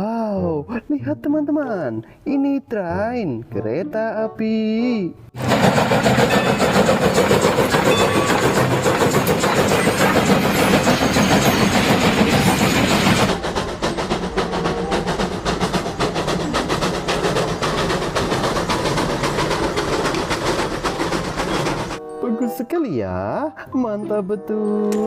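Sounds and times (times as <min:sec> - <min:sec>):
hiss: 0:05.4 - 0:22.0
train clickety-clack: 0:05.4 - 0:22.0.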